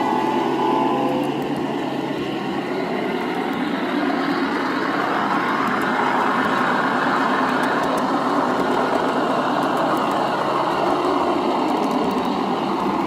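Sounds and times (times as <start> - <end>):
faint whine dropping in pitch: 0.0 - 5.2.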